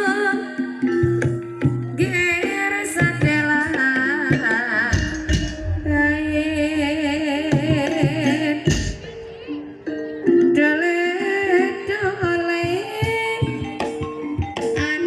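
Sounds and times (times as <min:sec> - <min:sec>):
person singing with vibrato: 0:00.0 - 0:09.6, 0:10.6 - 0:13.8
gamelan instruments: 0:00.0 - 0:15.0
hand drum strokes: 0:01.0 - 0:09.7.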